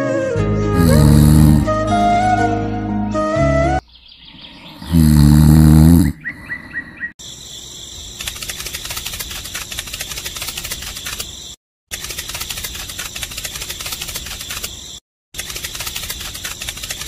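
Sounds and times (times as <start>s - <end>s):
flute tune: 0.0s - 3.8s
cartoon snore: 0.8s - 1.8s, 4.7s - 6.4s
quick bird chirps: 5.9s - 7.1s, 7.8s - 17.0s
fast run of ticks and clicks: 8.2s - 17.0s.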